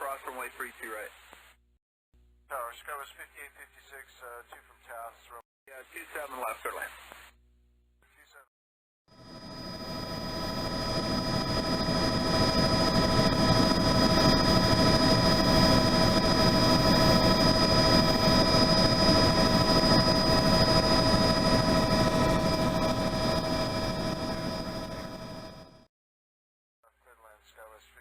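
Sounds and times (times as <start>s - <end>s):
helicopter running: 9.1s - 25.9s.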